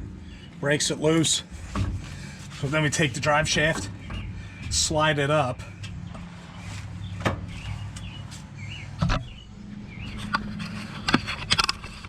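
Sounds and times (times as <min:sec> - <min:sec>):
metal drive shaft clicks and clunks: 0:03.4 - 0:04.8, 0:10.0 - 0:12.0.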